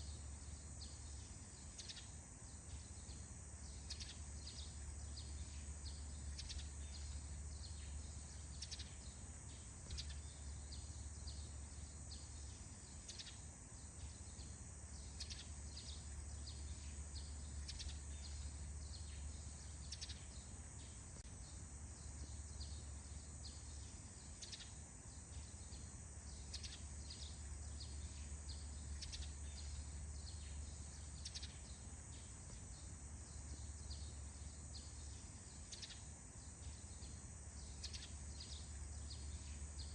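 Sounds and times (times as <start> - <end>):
high insect drone: 0.0 - 39.9
small birds chirping: 0.0 - 39.9.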